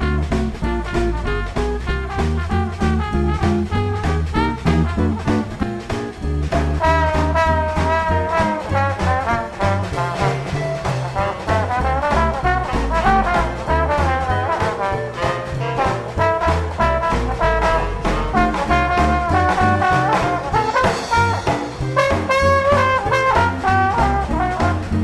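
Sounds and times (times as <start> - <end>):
brass and saxophone section: 0.0 - 5.9, 6.6 - 25.0
drums: 0.0 - 25.0
guitar: 0.0 - 25.0
upright bass: 0.0 - 25.0.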